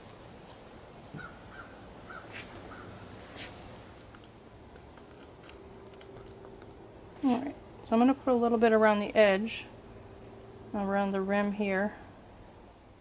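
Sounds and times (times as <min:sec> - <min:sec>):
low outdoor hum: 0:00.0 - 0:13.0
bird calling: 0:01.2 - 0:03.0.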